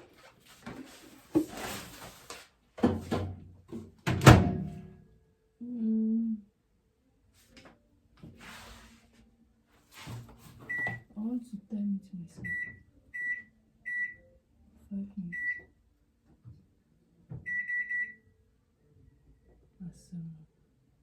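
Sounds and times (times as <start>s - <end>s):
knocks from handling microwave: 4.1s - 4.7s
keypad beep: 10.7s - 11.0s, 12.4s - 14.2s, 15.3s - 15.6s, 17.5s - 18.2s.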